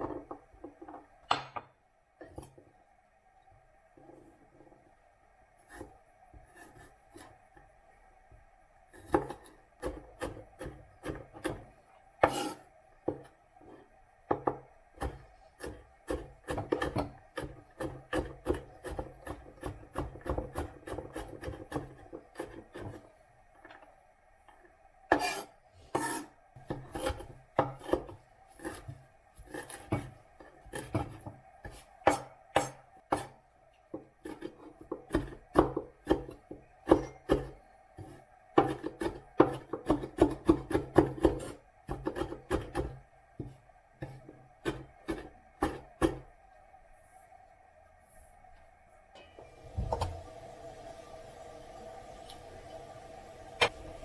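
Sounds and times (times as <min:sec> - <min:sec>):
faint steady hum: 0:00.0 - 0:54.0
knife chopping on wooden board: 0:25.1 - 0:33.4.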